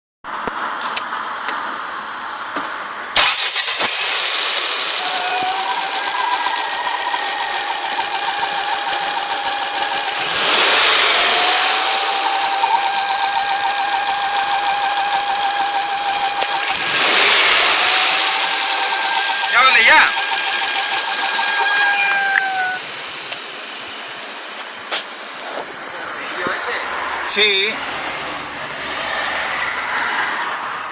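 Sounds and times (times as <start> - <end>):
car engine running: 3.2 - 30.9
thin high tone: 4.8 - 27.9.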